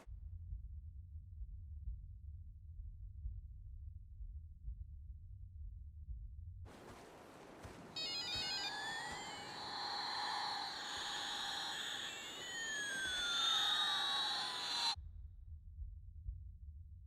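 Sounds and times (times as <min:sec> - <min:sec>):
sweeping feedback whistles: 0:07.8 - 0:15.0
short high electronic beeps: 0:07.9 - 0:15.0.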